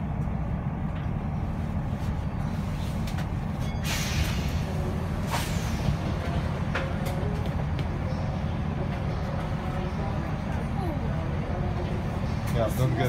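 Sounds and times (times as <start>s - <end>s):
stationary train rumble: 0.0s - 13.0s.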